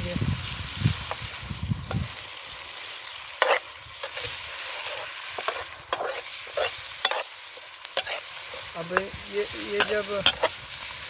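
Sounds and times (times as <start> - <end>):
vegetables sizzling in oil: 0.0 - 11.0
metal spoon scraping pot: 3.4 - 7.3, 9.8 - 10.5.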